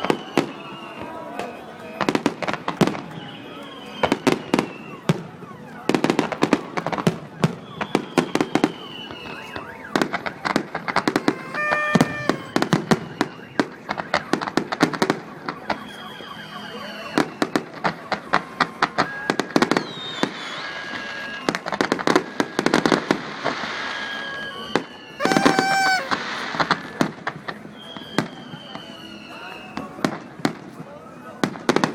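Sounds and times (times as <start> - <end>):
fireworks whistling down: 0.0 - 1.1, 5.9 - 17.7, 19.0 - 27.1, 27.7 - 30.1
firecrackers banging and popping: 6.0 - 15.6, 25.2 - 27.6
steady horn-like tone: 11.2 - 12.6.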